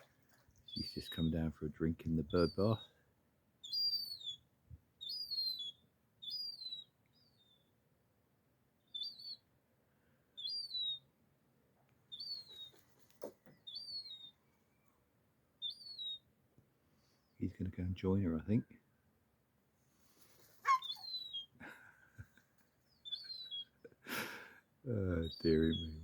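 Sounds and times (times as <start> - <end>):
young gull begging whistles: 3.6 - 4.4, 5.0 - 7.7, 8.9 - 9.4, 10.4 - 11.0, 13.7 - 14.3, 15.6 - 16.2, 20.6 - 21.5, 23.0 - 23.8, 25.2 - 26.0.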